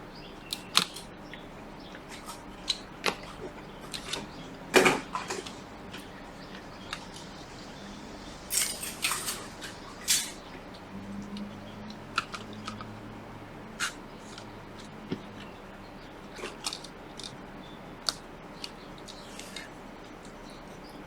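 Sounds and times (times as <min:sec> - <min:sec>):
low steady hum: 0:00.0 - 0:21.0
small tools clicking and tapping: 0:02.0 - 0:07.4, 0:08.5 - 0:13.0, 0:13.8 - 0:15.6, 0:16.3 - 0:17.4.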